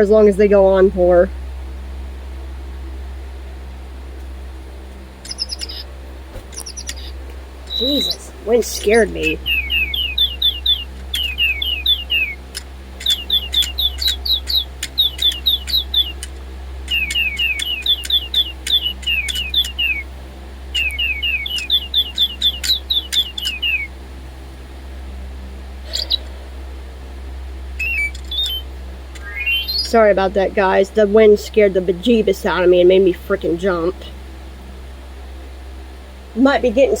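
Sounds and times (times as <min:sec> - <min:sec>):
sharp clicks: 0:05.2 - 0:07.1, 0:12.5 - 0:20.0, 0:22.4 - 0:23.7, 0:27.8 - 0:29.9
toy birds chirping electronically: 0:05.2 - 0:20.1, 0:20.7 - 0:23.9, 0:25.9 - 0:26.3, 0:27.8 - 0:30.0.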